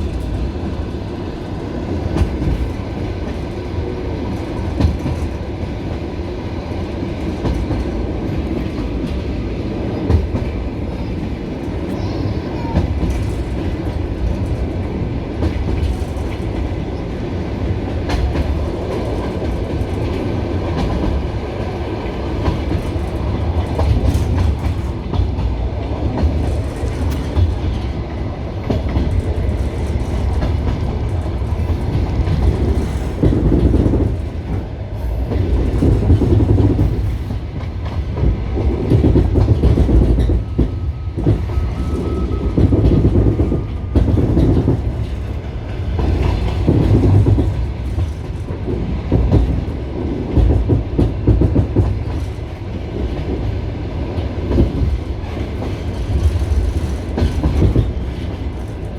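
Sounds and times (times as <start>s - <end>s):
train rumbling: 0.0s - 58.9s
train wheels clattering over rail joints: 1.6s - 3.7s, 12.7s - 17.0s, 17.7s - 58.9s.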